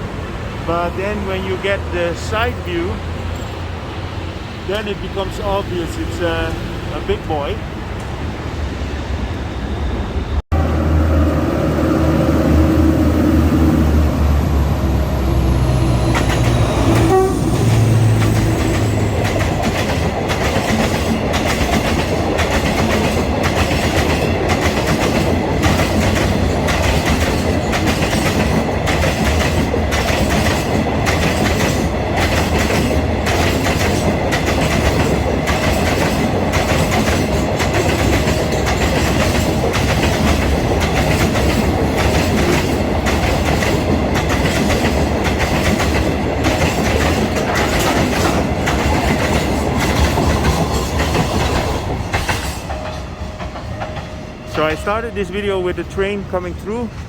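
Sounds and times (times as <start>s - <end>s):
train engine drone: 0.0s - 57.0s
wagons clattering over rail joints: 16.1s - 57.0s.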